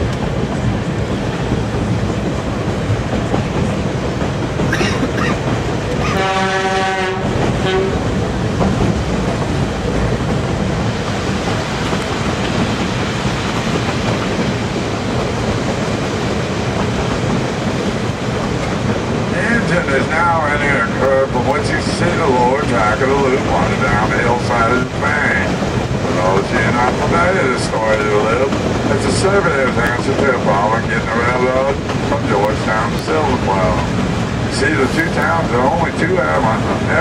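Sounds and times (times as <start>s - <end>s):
train wheel and rail noise: 0.0s - 37.0s
diesel locomotive horn: 6.0s - 8.1s.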